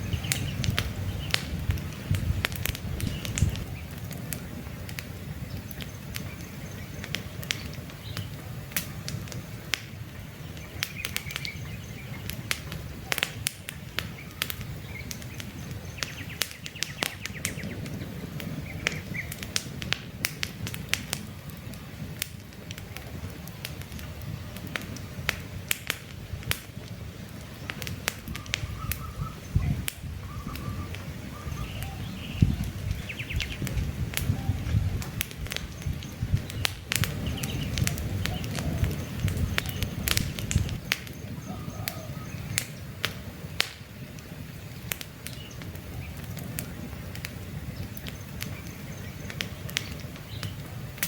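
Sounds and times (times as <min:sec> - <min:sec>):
campfire crackling: 0:00.0 - 0:51.0
faint bird chirps: 0:28.3 - 0:33.6, 0:41.1 - 0:42.7.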